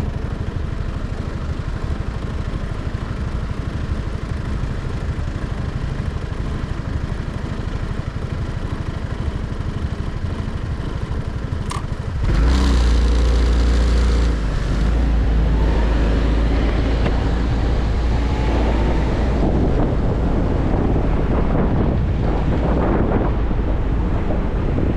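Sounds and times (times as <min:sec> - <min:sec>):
motorcycle engine: 0:00.0 - 0:24.7
wind rushing over microphone: 0:14.3 - 0:24.9.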